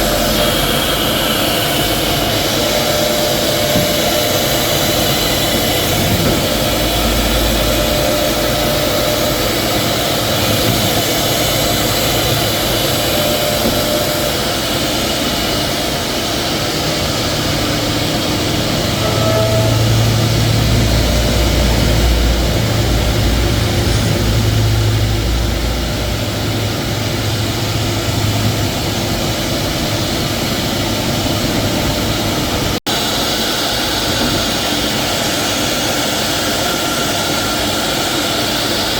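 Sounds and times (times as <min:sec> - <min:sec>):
cnc router whirring: 0:00.0 - 0:38.9.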